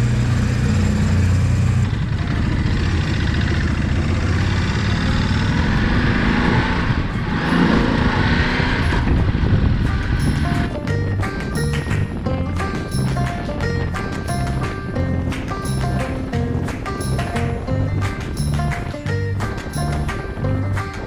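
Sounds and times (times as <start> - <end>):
motorcycle engines pulling away: 0.0 - 21.0
wind noise: 5.0 - 21.0.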